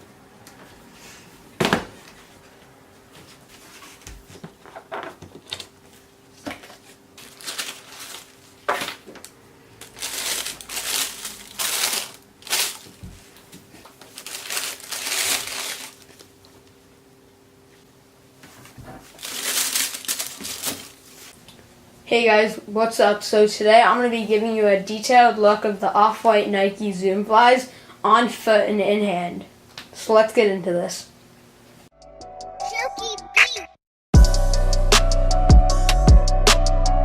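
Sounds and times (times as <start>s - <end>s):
paper crinkling and rustling: 3.2s - 16.5s, 18.5s - 21.4s.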